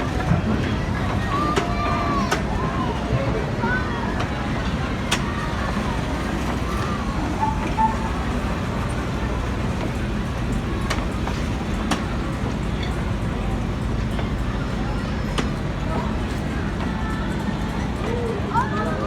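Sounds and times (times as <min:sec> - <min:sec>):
faint voices: 0:00.0 - 0:19.0
vehicle rumbling in motion: 0:00.0 - 0:19.0.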